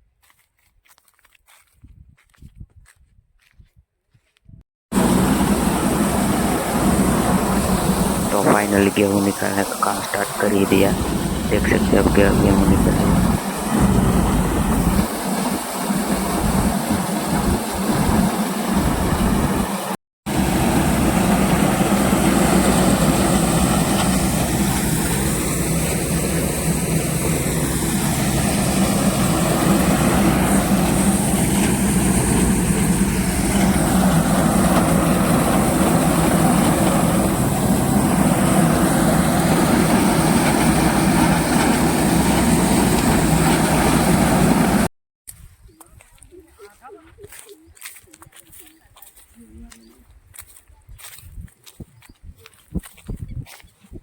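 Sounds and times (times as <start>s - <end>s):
thresher machine roaring: 4.9s - 44.9s.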